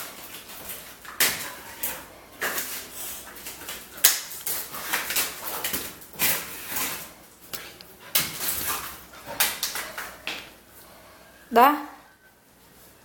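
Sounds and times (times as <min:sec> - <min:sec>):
dog scuffling with a toy: 0:00.0 - 0:10.3.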